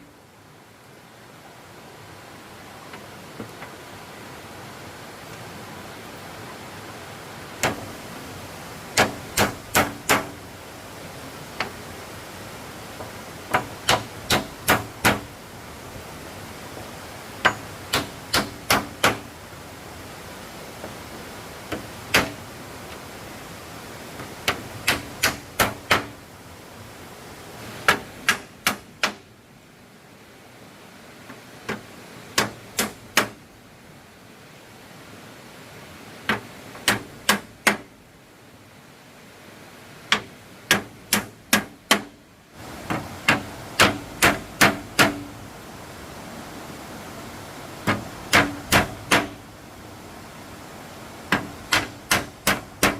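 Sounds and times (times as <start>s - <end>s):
hammer striking wood: 7.6s - 7.9s, 9.0s - 10.4s, 13.5s - 15.3s, 17.4s - 19.3s, 21.7s - 22.4s, 24.5s - 26.2s, 27.9s - 29.3s, 32.4s - 33.4s, 36.3s - 37.9s, 40.1s - 42.2s, 42.9s - 45.3s, 47.8s - 49.4s, 51.3s - 52.9s.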